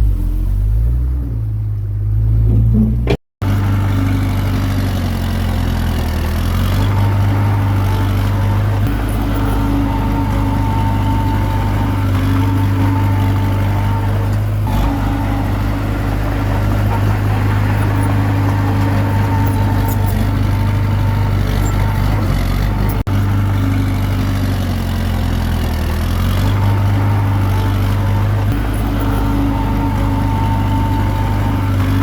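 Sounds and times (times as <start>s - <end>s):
bulldozer diesel engine running: 0.0s - 32.0s.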